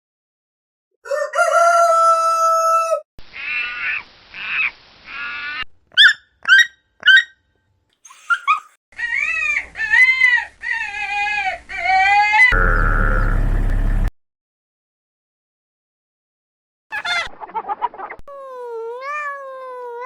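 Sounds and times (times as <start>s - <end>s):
animal calls: 12.5s - 14.1s.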